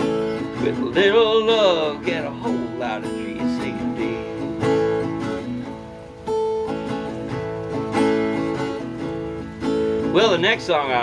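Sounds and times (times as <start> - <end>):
person singing: 0.0 - 6.0
acoustic guitar chords ringing: 0.0 - 11.0.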